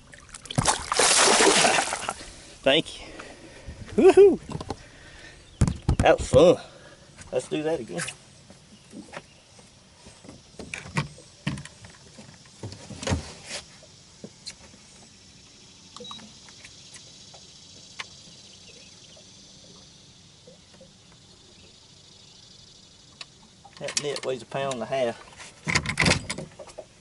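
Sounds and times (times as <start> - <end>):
faint steady high hiss: 0.0 - 27.0.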